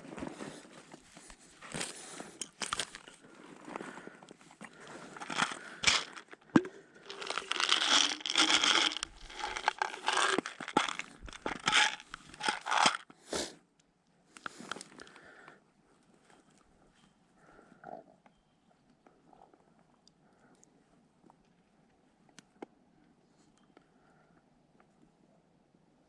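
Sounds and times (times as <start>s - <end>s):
crinkling and tearing: 0.7s - 4.0s, 4.7s - 13.0s.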